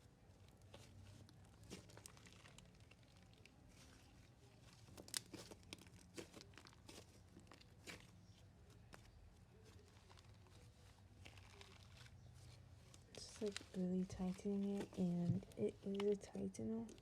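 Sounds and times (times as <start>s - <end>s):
slime clicks and crackles: 0.4s - 12.2s.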